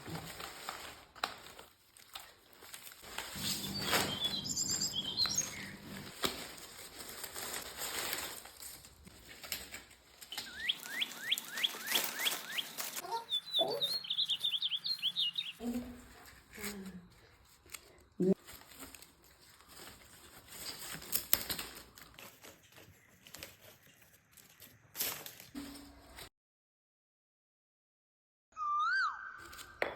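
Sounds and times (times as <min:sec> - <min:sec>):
rustling and clicking handling noise: 0:00.0 - 0:13.1, 0:16.0 - 0:26.3
bird quick falling calls: 0:03.4 - 0:06.1, 0:10.3 - 0:15.6
birds chirping: 0:03.4 - 0:06.1, 0:10.3 - 0:16.0.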